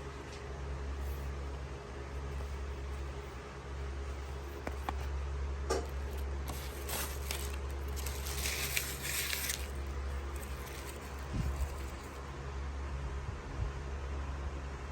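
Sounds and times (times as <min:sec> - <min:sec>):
steady low hum: 0:00.0 - 0:14.9
packaging rustling: 0:04.3 - 0:12.2.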